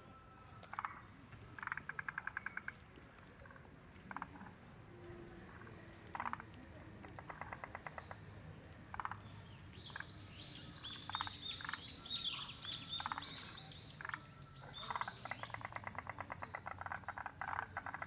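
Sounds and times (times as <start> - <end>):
frogs calling in rattling clicks: 0.7 - 2.8, 3.5 - 4.4, 6.1 - 9.3, 9.9 - 10.1, 10.8 - 18.0.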